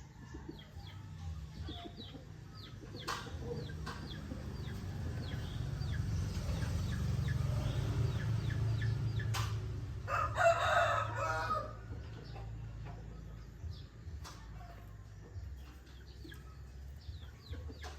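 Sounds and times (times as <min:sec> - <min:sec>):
small bird chirping: 0:00.0 - 0:09.8, 0:12.0 - 0:17.9
rooster crowing: 0:10.1 - 0:12.0.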